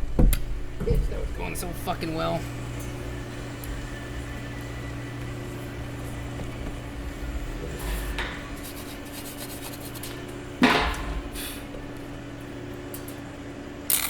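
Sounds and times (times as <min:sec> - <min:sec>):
low hum: 0:00.0 - 0:14.0
short scrape: 0:07.8 - 0:10.3.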